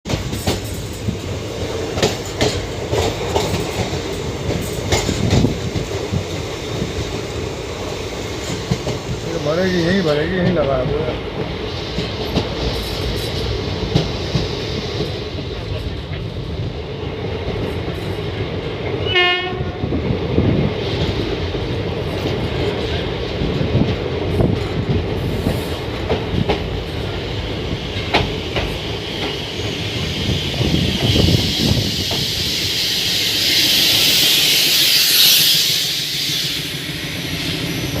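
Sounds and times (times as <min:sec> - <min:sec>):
train running rumble: 0:00.1 - 0:38.0
train horn blast: 0:19.0 - 0:19.8
rushing hiss: 0:26.6 - 0:38.0.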